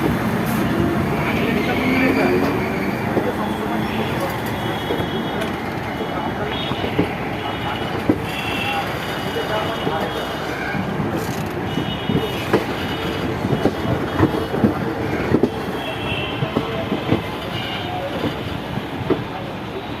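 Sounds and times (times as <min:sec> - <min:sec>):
train wheels rumbling on rails: 0:00.0 - 0:20.0
wheels clacking over rail joints: 0:10.9 - 0:19.5.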